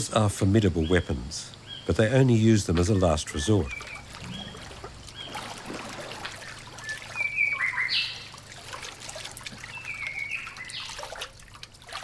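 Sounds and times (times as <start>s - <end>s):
trickling water: 0.0s - 12.0s
birds calling in whistled notes: 0.5s - 8.4s, 9.6s - 11.2s.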